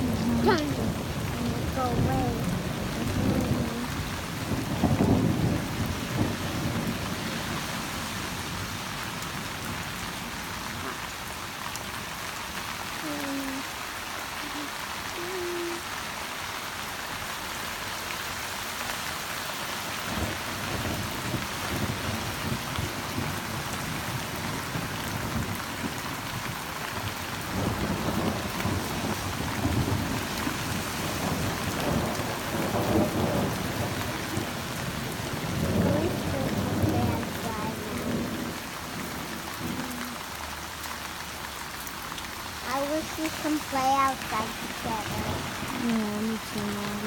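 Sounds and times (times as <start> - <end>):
thunder rumbling: 0.0 - 7.8, 27.4 - 40.2, 43.0 - 47.0
rain falling: 0.0 - 47.0.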